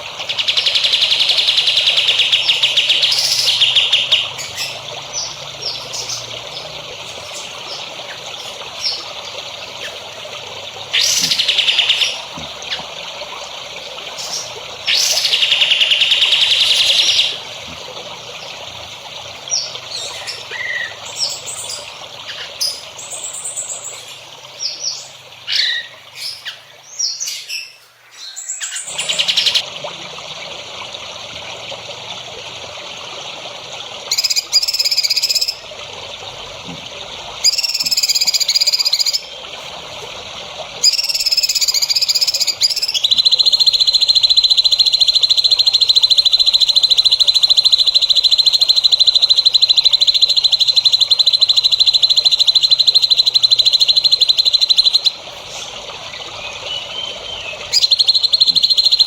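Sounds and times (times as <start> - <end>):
songbirds chirping and trilling: 0.0 - 29.6, 37.4 - 59.0.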